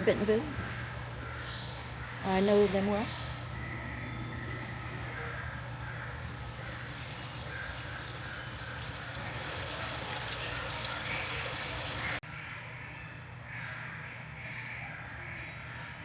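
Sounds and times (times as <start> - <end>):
water running and trickling: 6.2 - 12.2.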